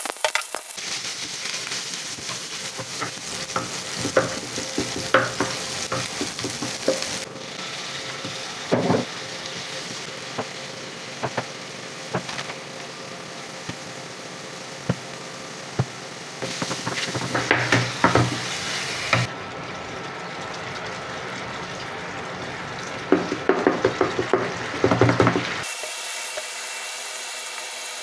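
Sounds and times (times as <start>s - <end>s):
onions sizzling in a frying pan: 0.0s - 28.0s
wooden spatula scraping a pan: 0.8s - 7.3s, 16.4s - 19.3s, 23.2s - 26.4s
sauce simmering: 0.8s - 25.9s.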